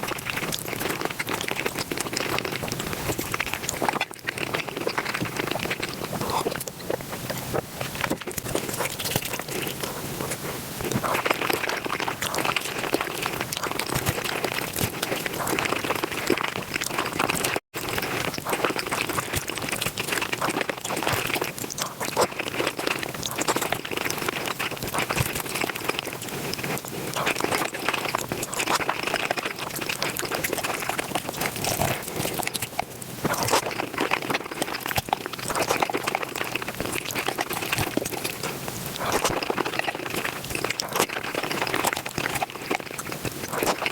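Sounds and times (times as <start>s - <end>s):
rapid chewing and crunching: 0.0s - 43.9s.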